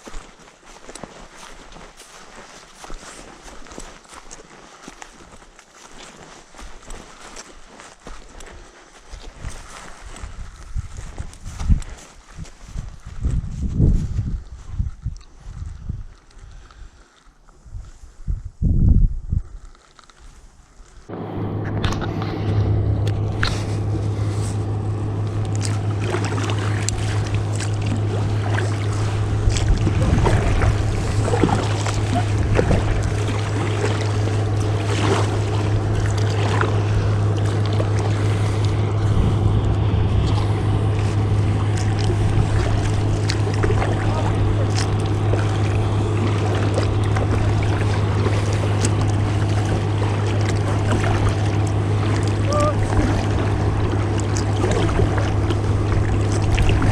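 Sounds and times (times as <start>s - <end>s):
motorboat engine drone: 21.1s - 56.9s
water splashes: 21.8s - 56.9s.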